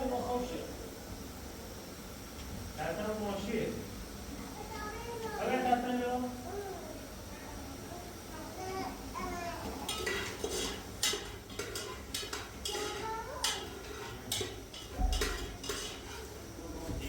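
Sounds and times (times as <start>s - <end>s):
dishes and cutlery clattering: 9.8s - 16.3s.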